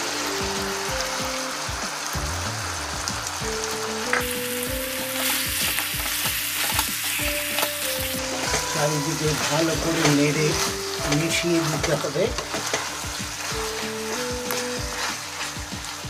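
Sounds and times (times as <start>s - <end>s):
chicken sizzling in hot oil: 0.0s - 16.0s
spatula scraping pan: 7.6s - 15.6s.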